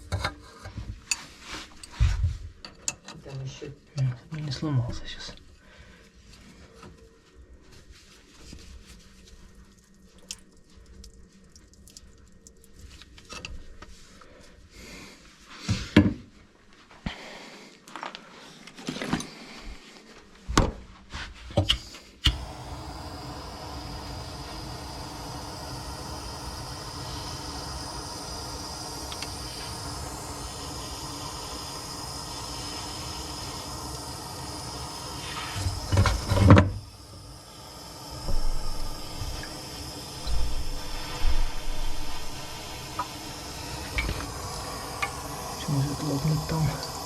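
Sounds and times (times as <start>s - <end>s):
heating tool hissing: 21.7s - 47.0s.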